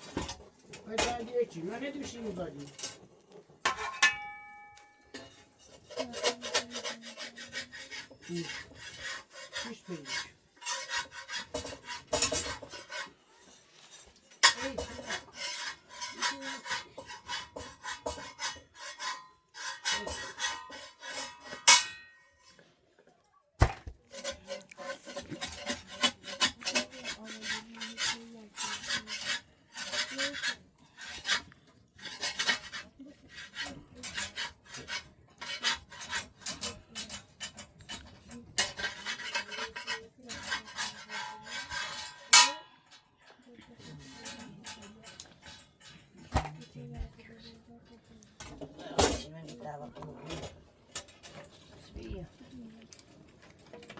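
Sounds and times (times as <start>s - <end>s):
rasping scraping strokes: 5.2s - 22.7s, 24.0s - 42.6s.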